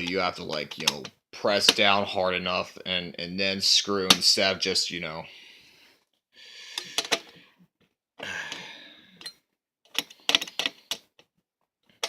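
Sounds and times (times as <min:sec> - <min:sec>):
person breathing out heavily: 0:05.3 - 0:07.6, 0:08.2 - 0:09.2.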